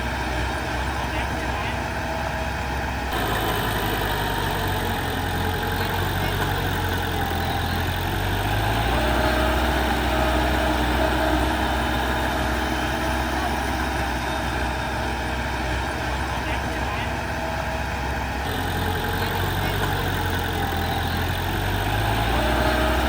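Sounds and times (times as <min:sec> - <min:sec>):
heavy diesel engine at low revs: 0:00.0 - 0:23.0.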